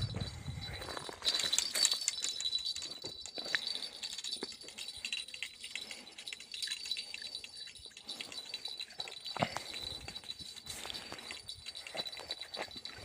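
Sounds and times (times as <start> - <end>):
small bells jingling: 0.0 - 13.0.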